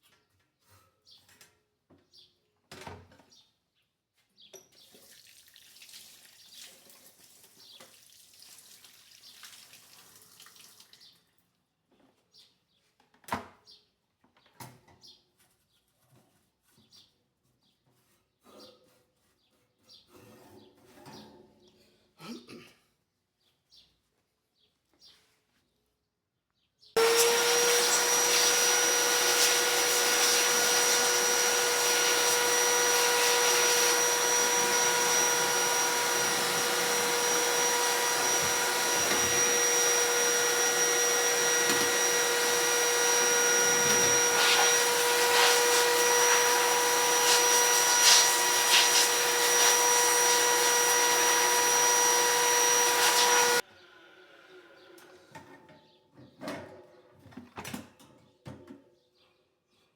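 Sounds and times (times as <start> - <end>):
vacuum cleaner whining: 27.0 - 53.6.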